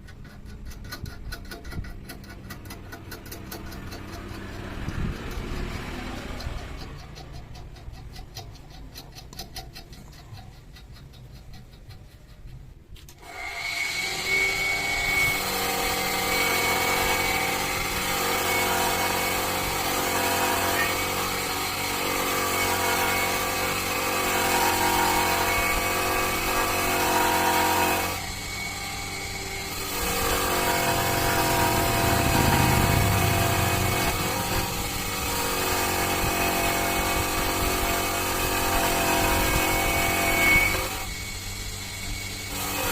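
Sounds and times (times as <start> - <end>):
power tool whining: 13.1 - 42.9.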